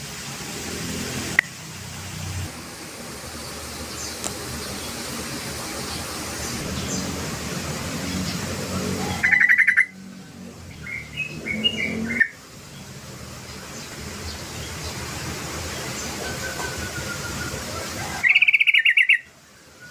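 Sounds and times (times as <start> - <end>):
background hiss: 0.0 - 18.3
bird trilling and calling: 8.0 - 10.0, 10.7 - 12.4, 15.9 - 19.3.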